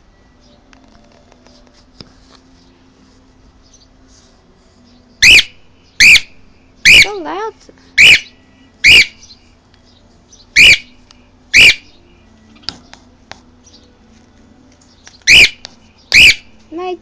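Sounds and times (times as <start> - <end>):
cockatiel squawking: 5.2 - 6.3, 6.9 - 7.2, 8.0 - 9.3, 10.6 - 11.0, 11.6 - 11.9, 15.3 - 16.5.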